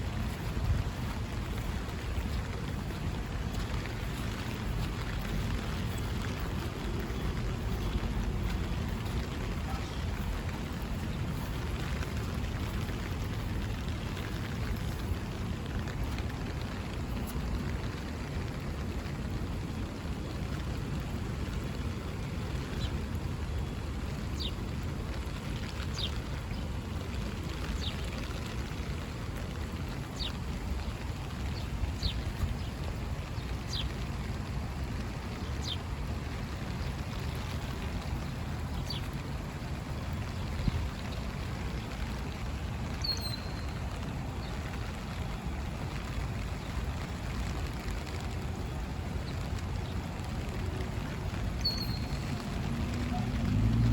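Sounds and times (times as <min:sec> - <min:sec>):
steady rain: 0:00.0 - 0:53.9
small bird chirping: 0:51.6 - 0:52.3.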